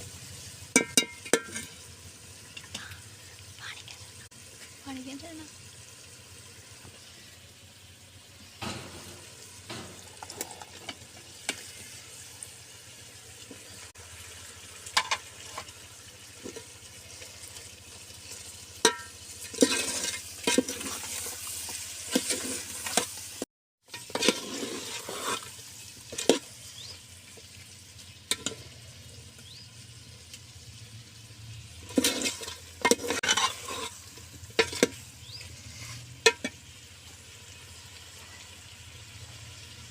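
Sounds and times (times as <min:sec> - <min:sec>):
chicken sizzling in a pot: 0:00.0 - 0:39.9
spoon scraping a pot: 0:18.9 - 0:23.1, 0:23.9 - 0:26.5, 0:31.9 - 0:34.0, 0:34.6 - 0:36.6.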